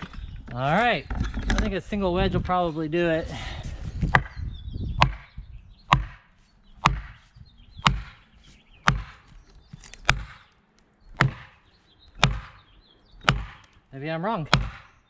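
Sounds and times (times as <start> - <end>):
axe striking a wedge: 5.9 - 7.2, 7.8 - 8.2, 8.9 - 10.5, 11.2 - 11.6, 12.2 - 12.6, 13.3 - 13.7, 14.5 - 15.0.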